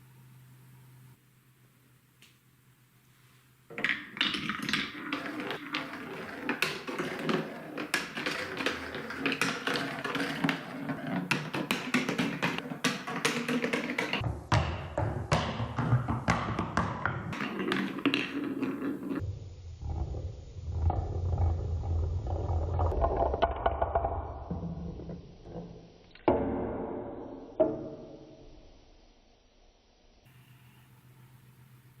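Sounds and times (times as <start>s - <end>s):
plastic marbles clattering down track: 3.7s - 14.2s, 15.8s - 19.2s, 21.3s - 25.2s.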